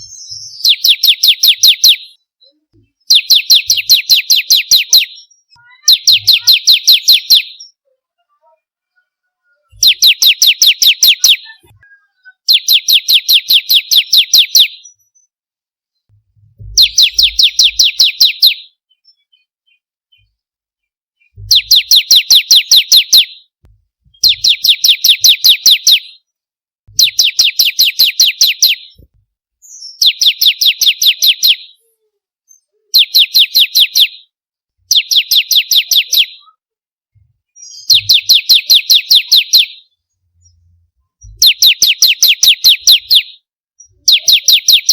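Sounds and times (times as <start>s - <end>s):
bird singing high chipping notes: 0.0s - 7.8s, 16.7s - 19.3s, 21.3s - 23.4s, 24.2s - 26.2s.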